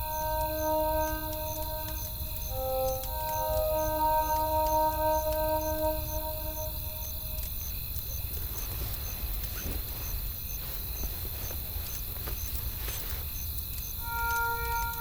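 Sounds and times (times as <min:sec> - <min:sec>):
sustained music notes: 0:00.0 - 0:07.7, 0:14.0 - 0:15.0.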